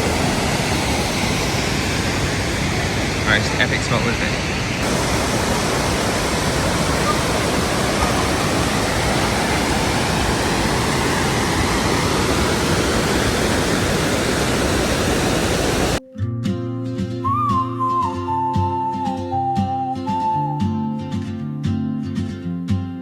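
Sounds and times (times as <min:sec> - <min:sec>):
waterfall rushing: 0:00.0 - 0:16.0
flute-like music melody: 0:16.0 - 0:22.0.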